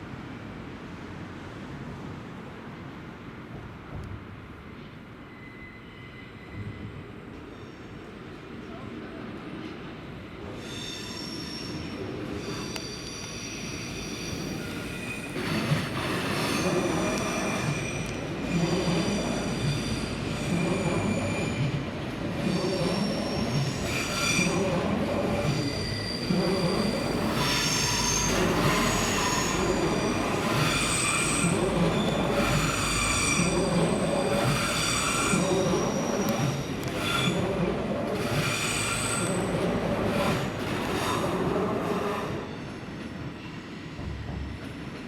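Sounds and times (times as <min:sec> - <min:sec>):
train wheels squealing: 0:04.6 - 0:08.8, 0:10.3 - 0:45.0
train running rumble: 0:14.4 - 0:42.4.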